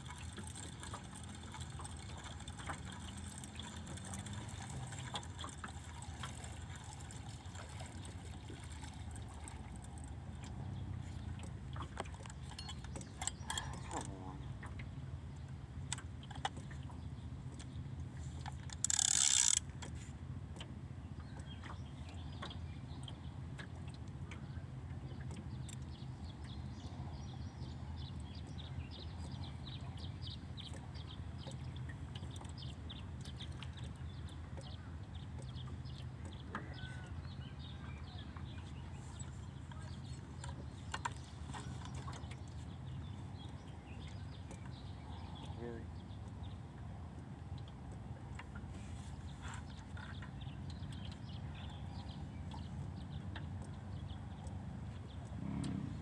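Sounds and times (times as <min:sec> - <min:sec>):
light mechanical clicking: 0:00.0 - 0:10.2, 0:18.4 - 0:20.0.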